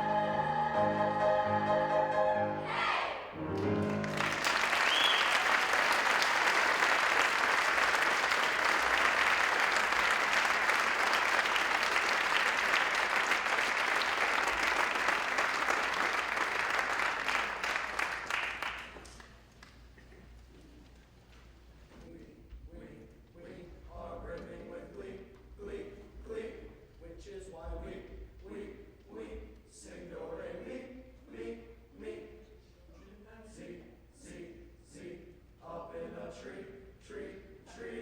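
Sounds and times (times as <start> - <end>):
audience applauding: 3.6 - 19.4.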